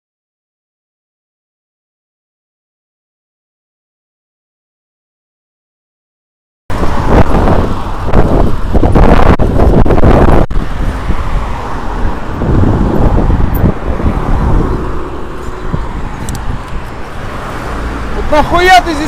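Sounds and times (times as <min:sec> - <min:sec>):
car engine rumble: 0:06.7 - 0:19.0.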